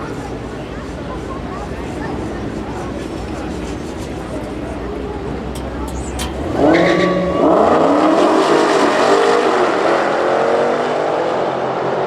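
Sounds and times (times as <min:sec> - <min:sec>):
cars accelerating at full throttle: 0:05.6 - 0:12.0.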